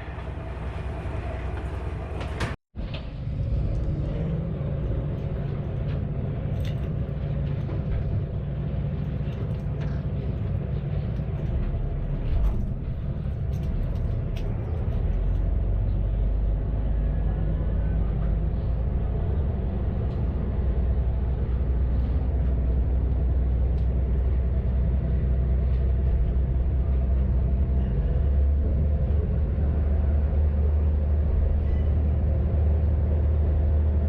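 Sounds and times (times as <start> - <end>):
diesel railcar engine rumbling: 0.0 - 34.0.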